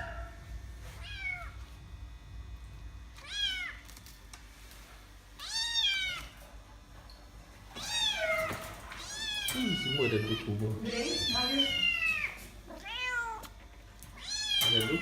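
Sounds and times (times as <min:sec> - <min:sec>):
kitten meowing: 0:03.2 - 0:03.8, 0:05.4 - 0:06.3, 0:07.8 - 0:13.5, 0:14.2 - 0:15.0.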